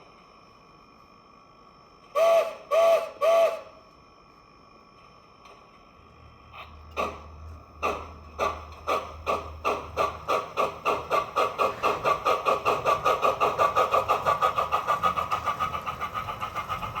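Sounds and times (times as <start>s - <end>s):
model steam locomotive chuffs: 2.1s - 3.8s, 6.4s - 17.0s.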